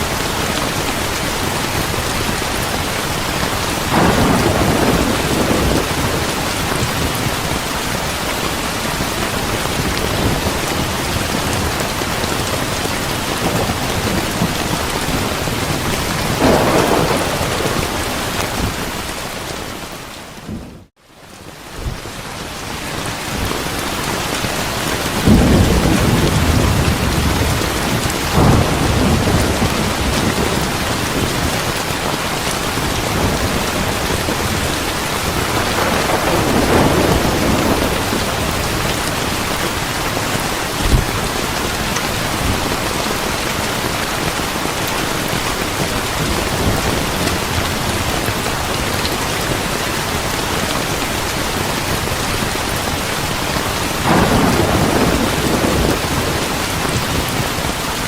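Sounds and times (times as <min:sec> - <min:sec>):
thunder rumbling: 0:00.0 - 0:20.9, 0:24.5 - 0:44.3, 0:53.6 - 0:57.8
steady rain falling: 0:00.0 - 0:58.0.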